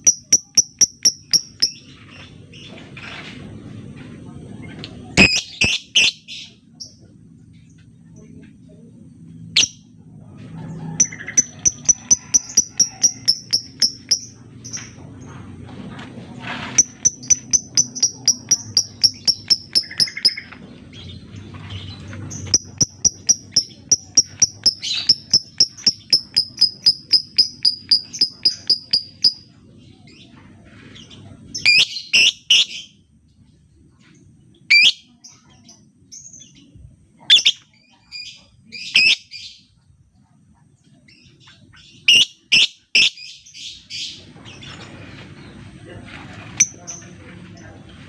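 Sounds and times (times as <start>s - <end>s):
lovebird high chirps: 0.0s - 1.9s, 5.2s - 6.6s, 9.5s - 9.9s, 11.0s - 14.9s, 16.8s - 20.6s, 22.3s - 29.5s, 31.6s - 33.0s, 34.7s - 36.6s, 37.2s - 39.6s, 41.8s - 44.2s.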